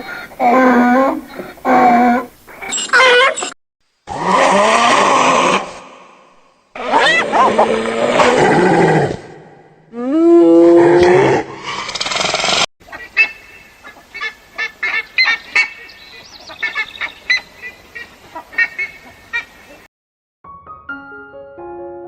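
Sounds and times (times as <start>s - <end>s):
loud rough sound: 11.4s - 12.7s
waterfowl honking: 12.9s - 19.6s.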